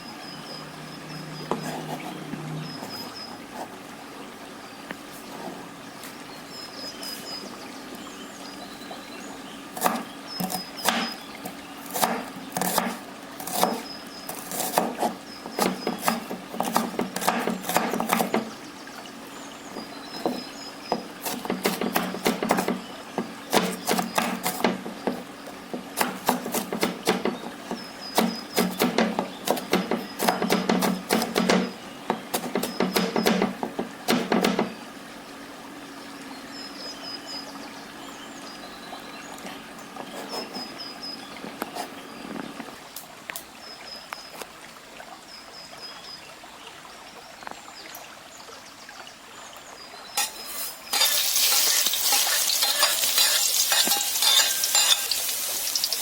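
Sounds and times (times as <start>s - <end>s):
knife chopping on wooden board: 9.8s - 11.2s, 11.9s - 13.8s, 14.4s - 18.5s, 20.2s - 34.7s.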